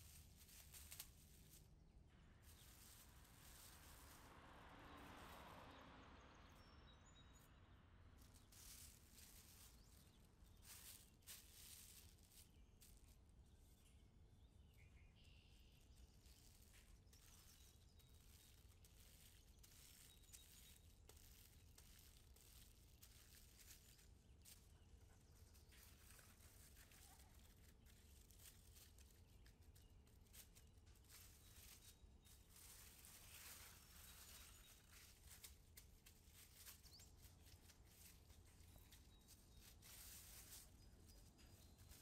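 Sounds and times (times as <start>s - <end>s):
plastic wrap crinkling: 0.0s - 1.8s, 2.4s - 5.4s, 8.2s - 13.7s, 15.6s - 42.0s.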